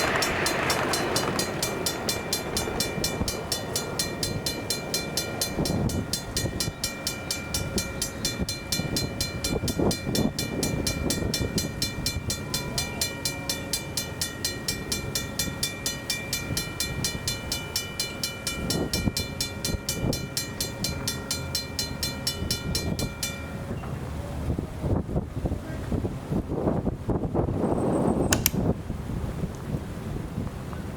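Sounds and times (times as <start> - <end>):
crossing bell ringing rapidly: 0.0 - 23.8.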